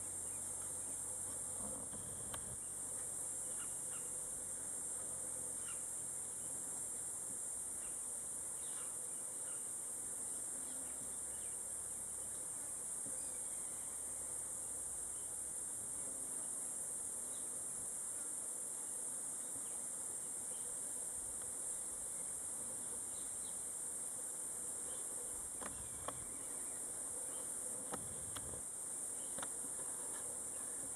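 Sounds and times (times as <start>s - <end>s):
high-pitched insect chorus: 0.0s - 30.9s.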